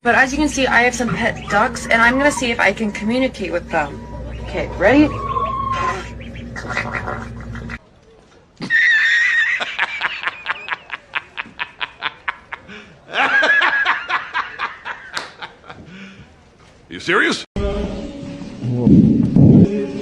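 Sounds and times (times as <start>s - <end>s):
duck quacking: 0.8s - 2.7s, 3.6s - 7.8s.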